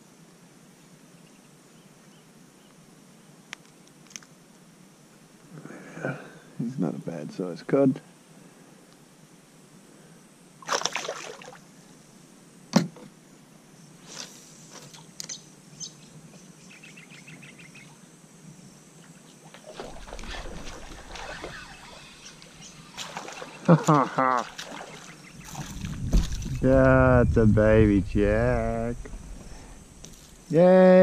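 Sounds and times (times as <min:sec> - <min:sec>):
water lapping: 0:19.6 - 0:27.0
wind buffeting microphone: 0:25.3 - 0:31.0.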